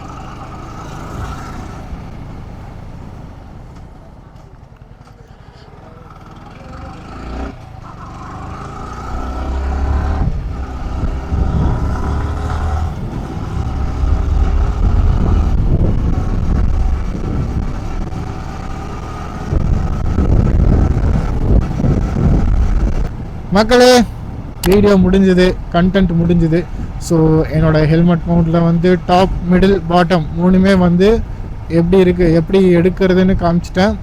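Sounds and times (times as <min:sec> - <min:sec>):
motorcycle engine accelerating: 0:00.0 - 0:25.8
wind rumble on microphone: 0:09.0 - 0:34.0.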